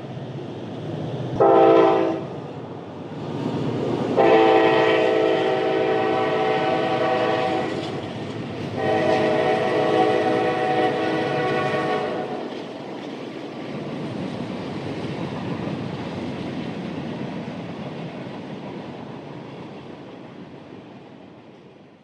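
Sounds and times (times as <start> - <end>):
moving train rumble: 0.0 - 22.0
train horn chord: 1.4 - 2.3, 4.2 - 8.0, 8.8 - 12.5.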